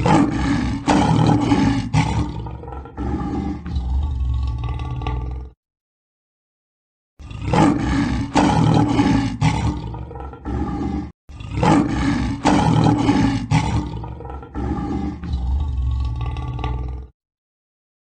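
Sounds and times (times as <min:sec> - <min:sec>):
lion roaring: 0:00.0 - 0:05.6, 0:07.2 - 0:17.2.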